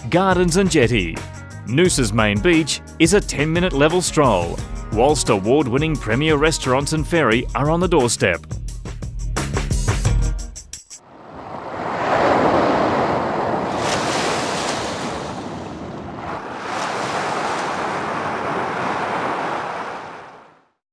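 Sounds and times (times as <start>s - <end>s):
waves rushing in: 11.0s - 20.8s.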